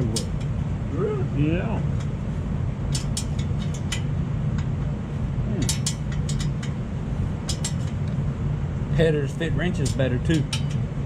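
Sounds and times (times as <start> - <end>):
steady low hum: 0.0 - 11.0
metallic clicks of hand tools: 2.9 - 4.7, 5.6 - 6.8.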